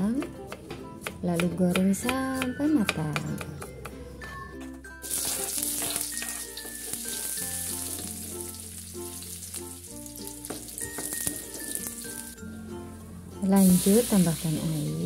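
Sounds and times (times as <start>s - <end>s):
shallots and garlic sizzling in oil: 5.0s - 12.4s, 13.4s - 15.0s.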